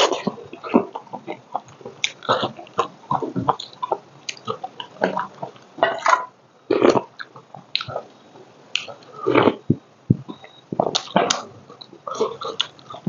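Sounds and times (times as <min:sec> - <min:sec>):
wet chewing and smacking: 0:00.0 - 0:06.0, 0:06.7 - 0:08.0, 0:10.3 - 0:13.0.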